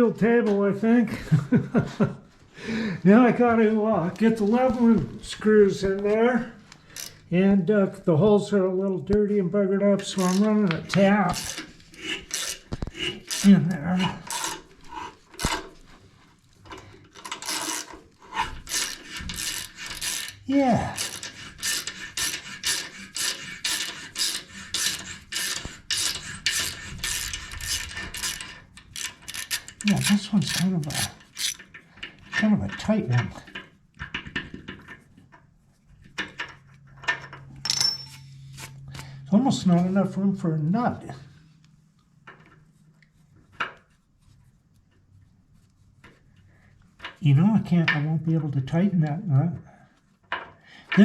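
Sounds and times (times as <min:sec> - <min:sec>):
faint metal clinks and scrapes: 0:36.3 - 0:38.9.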